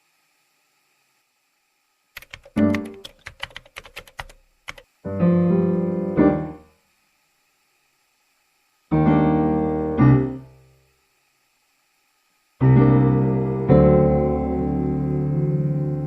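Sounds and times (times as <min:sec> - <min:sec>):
held piano chords: 0:02.5 - 0:03.1, 0:05.1 - 0:06.7, 0:08.9 - 0:10.6, 0:12.6 - 0:16.0.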